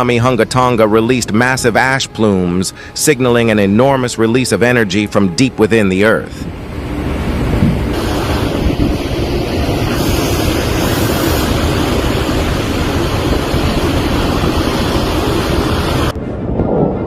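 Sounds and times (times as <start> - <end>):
loud rushing noise with rumble: 6.4 - 17.0.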